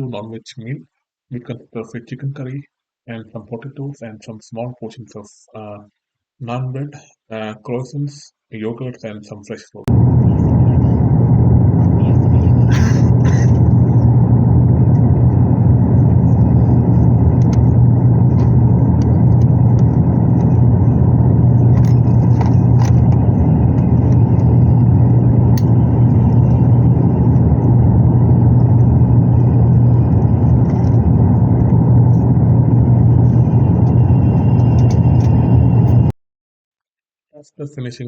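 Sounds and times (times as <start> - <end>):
airliner cabin drone: 9.9 - 36.2.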